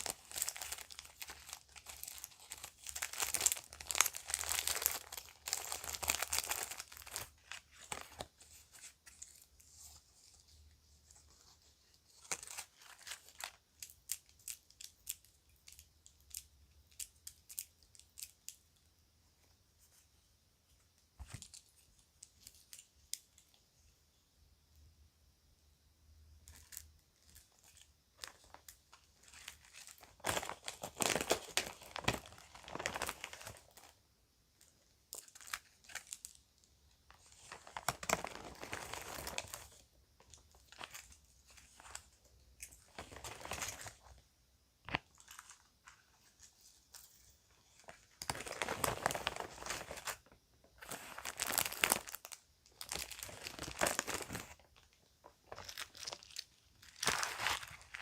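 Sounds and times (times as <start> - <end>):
plastic bag crinkling and tearing: 0.0 - 9.8, 26.5 - 33.9, 37.1 - 44.2, 47.8 - 58.0.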